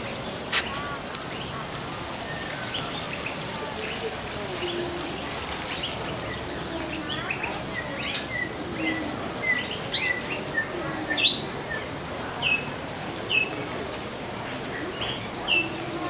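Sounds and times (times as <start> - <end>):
birds chirping: 0.0 - 13.6.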